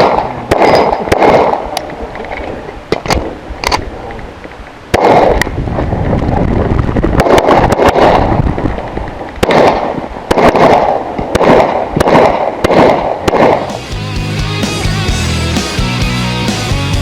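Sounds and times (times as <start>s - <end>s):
pistol shots with echo: 0.0s - 1.8s, 4.9s - 5.4s, 9.4s - 13.7s.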